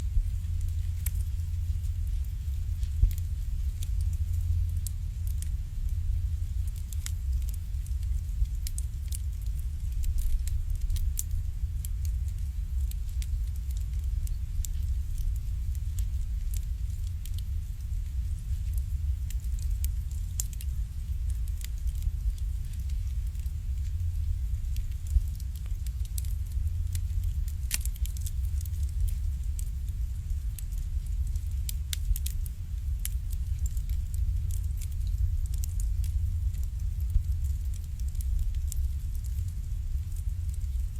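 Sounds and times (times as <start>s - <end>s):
steady low rumble: 0.0s - 40.9s
wood fire crackling and popping: 0.0s - 40.9s.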